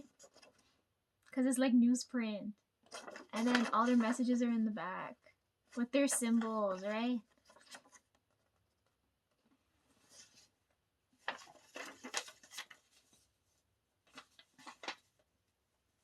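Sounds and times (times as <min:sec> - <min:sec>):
paper and card rustling: 0:00.0 - 0:00.8, 0:02.8 - 0:04.7, 0:05.7 - 0:10.6, 0:11.2 - 0:15.3.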